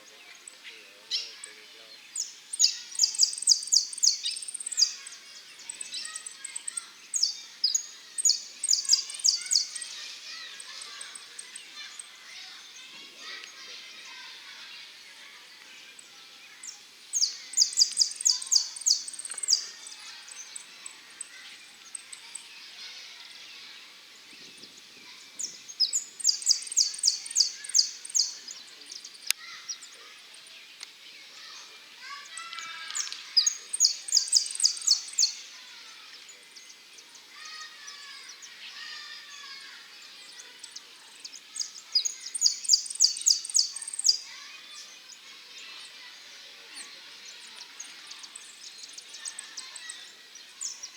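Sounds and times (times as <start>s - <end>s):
birds chirping softly: 0.0s - 50.9s
finch singing rapid high notes: 17.2s - 21.3s, 25.4s - 29.8s, 41.3s - 44.3s.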